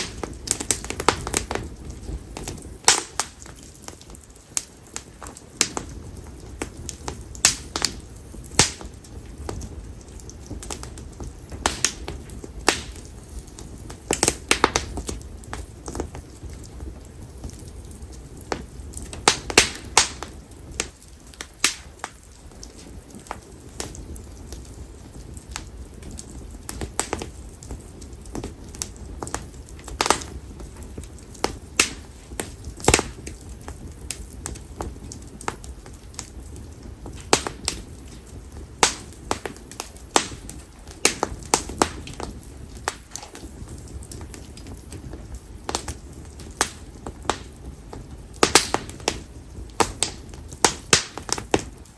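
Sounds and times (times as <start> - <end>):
wood popping and snapping: 0.0 - 4.0, 37.0 - 43.4, 46.6 - 49.2
campfire logs crackling: 0.0 - 51.9
low rumble of flames: 0.0 - 51.9.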